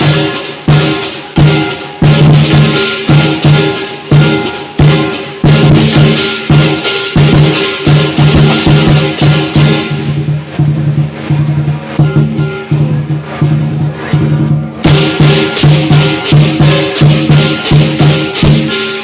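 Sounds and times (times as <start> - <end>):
cymbals clashing: 0.0 - 19.0
lion dance drum beaten hard: 0.0 - 19.0.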